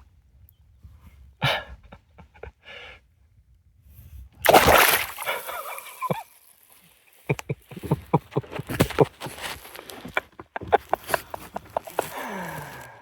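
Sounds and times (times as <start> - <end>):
fish splashing and thrashing in water: 4.4 - 6.9.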